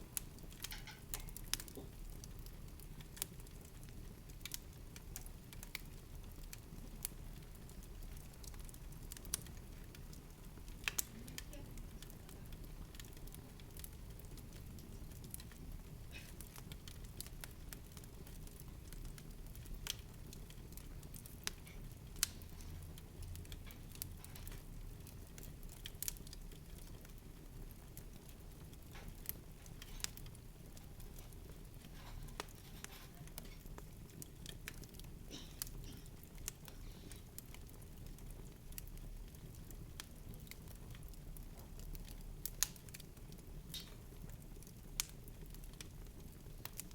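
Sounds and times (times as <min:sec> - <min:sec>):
light clicks and ticks: 0:10.8 - 0:12.2, 0:20.7 - 0:24.6, 0:41.8 - 0:43.0.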